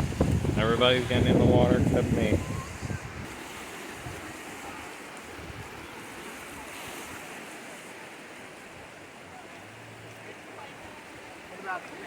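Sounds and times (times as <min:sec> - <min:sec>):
wind buffeting microphone: 0:00.0 - 0:07.4
waves washing on shore: 0:00.0 - 0:12.0.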